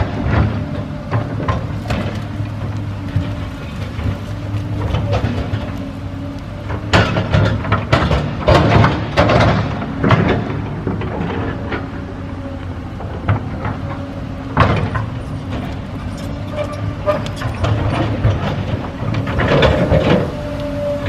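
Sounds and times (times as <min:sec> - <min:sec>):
bonfire burning with cracks and pops: 0:00.0 - 0:21.0.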